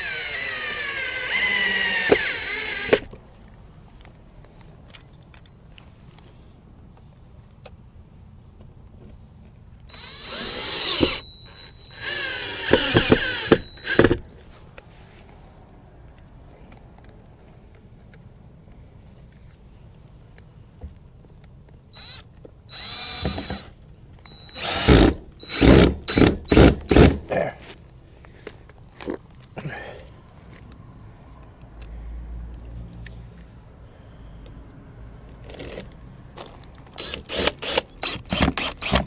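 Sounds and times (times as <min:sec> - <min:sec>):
power drill running: 0:00.0 - 0:03.1, 0:09.9 - 0:14.3, 0:22.0 - 0:27.2, 0:37.0 - 0:39.0.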